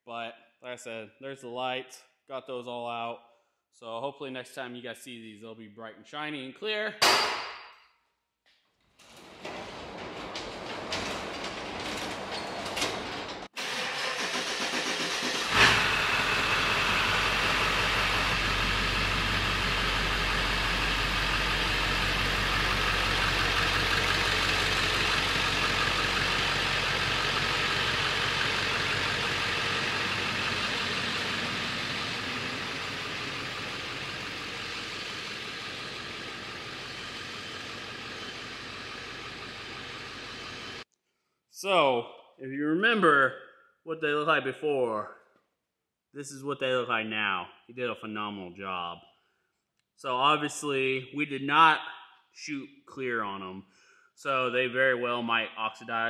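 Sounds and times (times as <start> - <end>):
car engine starting and running: 9.4 - 40.8.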